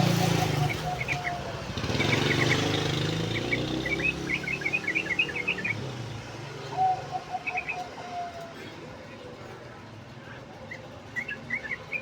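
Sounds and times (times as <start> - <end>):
bulbul singing chirps: 0.0 - 6.0.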